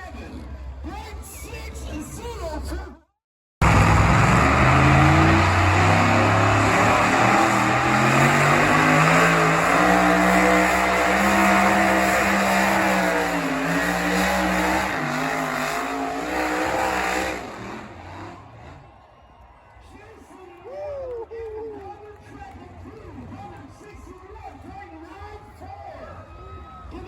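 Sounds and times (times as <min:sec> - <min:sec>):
truck engine at full throttle: 0:03.6 - 0:18.9.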